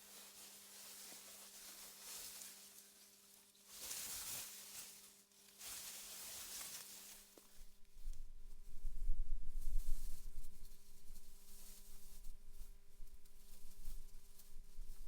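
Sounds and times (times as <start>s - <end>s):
wind rustling through grass: 6.4s - 15.0s.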